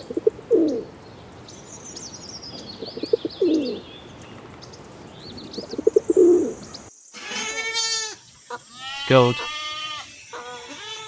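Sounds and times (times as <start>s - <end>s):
pigeon cooing: 0.0s - 7.4s
small birds chirping faintly: 0.0s - 9.5s.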